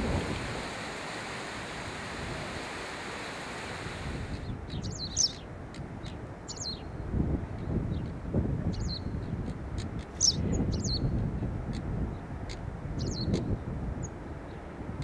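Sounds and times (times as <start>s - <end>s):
wind and surf rushing: 0.0s - 15.0s
wind buffeting microphone: 0.0s - 15.0s
small bird chirping: 4.4s - 6.9s, 10.0s - 11.1s, 13.0s - 13.5s.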